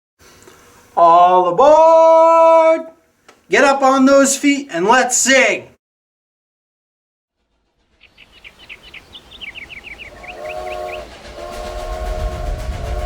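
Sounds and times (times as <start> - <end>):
low rumble: 7.4 - 13.0
steam train chugging: 7.4 - 13.0
train whistle chord: 8.2 - 13.0.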